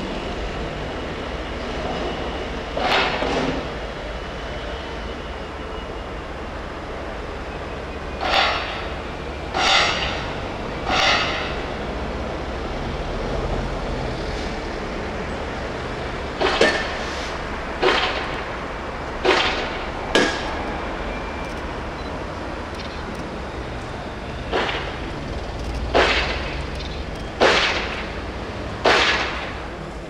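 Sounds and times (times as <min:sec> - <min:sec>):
diesel locomotive engine rumble: 0:00.0 - 0:30.0
sharp metal clanks: 0:24.5 - 0:28.1.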